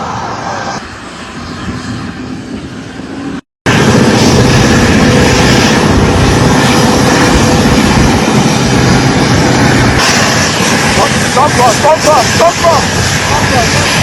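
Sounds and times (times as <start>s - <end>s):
jet engines roaring: 0.0s - 14.0s.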